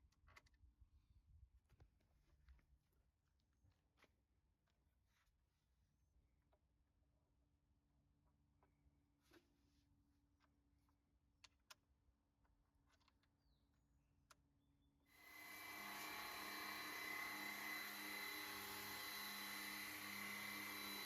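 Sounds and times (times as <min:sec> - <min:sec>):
pressure washer motor whine: 0:15.2 - 0:21.0.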